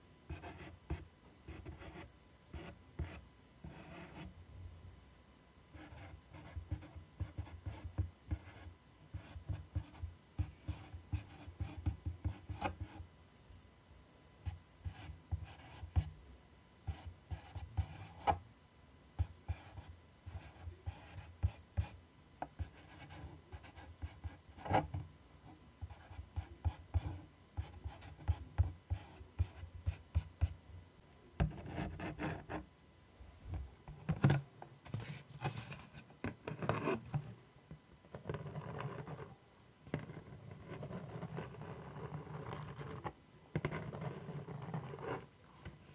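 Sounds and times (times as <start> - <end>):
scratching on a surface: 40.0 - 45.3.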